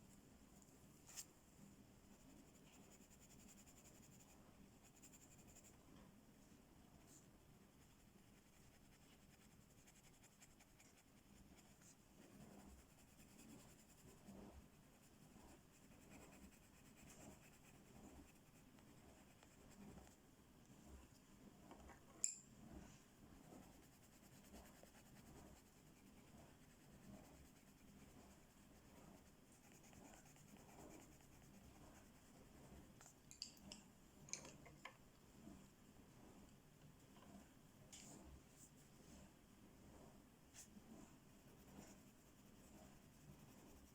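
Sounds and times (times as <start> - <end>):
coloring tool rubbing on paper: 2.1 - 5.7, 7.8 - 20.2, 23.3 - 32.9, 40.6 - 43.9.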